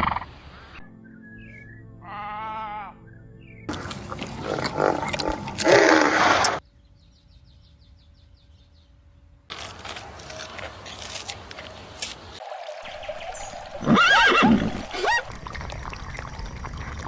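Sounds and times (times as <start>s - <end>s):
animal roaring: 3.7s - 6.6s.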